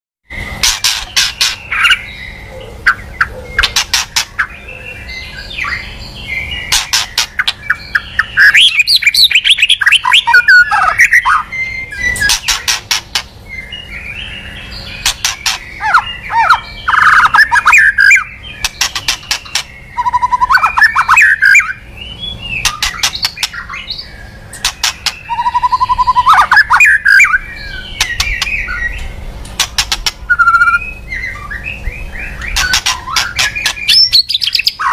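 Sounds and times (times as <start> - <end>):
sharp ticking bird notes: 0.3 - 34.9
bird singing whistled phrases: 4.4 - 12.4, 15.5 - 18.6, 19.8 - 29.1, 30.2 - 34.9.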